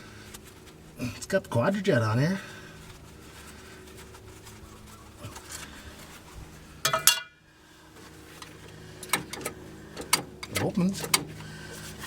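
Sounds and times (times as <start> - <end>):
light metal clinks and rattles: 6.8 - 7.4.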